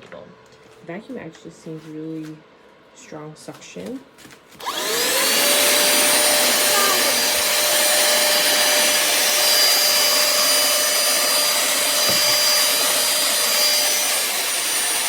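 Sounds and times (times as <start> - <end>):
handheld vacuum cleaner running: 4.6 - 15.0.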